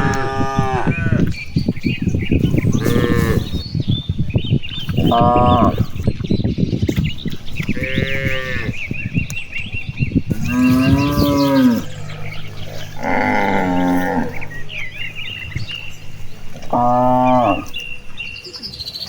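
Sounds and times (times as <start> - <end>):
small birds chirping: 0.0 - 19.0
cattle mooing: 2.4 - 3.6, 5.0 - 6.0, 7.4 - 9.2, 10.1 - 18.4.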